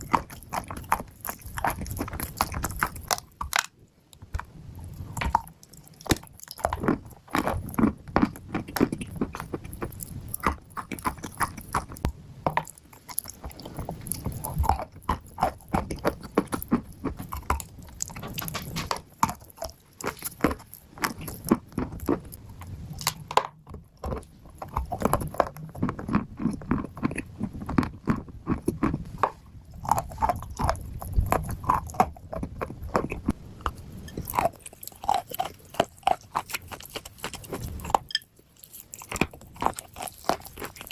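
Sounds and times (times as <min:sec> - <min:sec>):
person chewing crunchy clay: 0:00.0 - 0:40.9.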